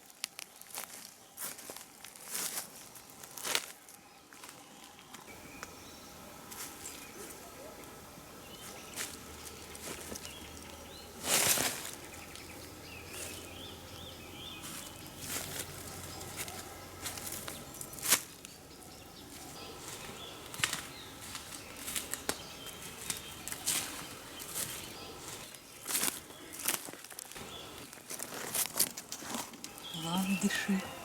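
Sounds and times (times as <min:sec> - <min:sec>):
rustling in dry leaves: 0:00.0 - 0:31.0
faint birdsong chirps: 0:00.1 - 0:31.0
twig snapping: 0:20.5 - 0:23.8.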